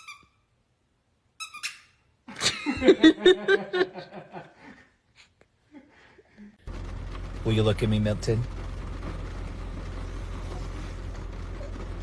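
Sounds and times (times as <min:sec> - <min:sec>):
short high squeak: 0:00.0 - 0:00.5, 0:01.4 - 0:02.0
burst of laughter: 0:02.3 - 0:04.9.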